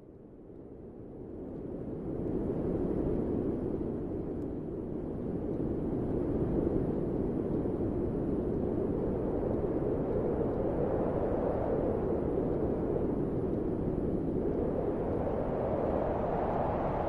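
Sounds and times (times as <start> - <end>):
wind blowing: 9.7 - 17.0.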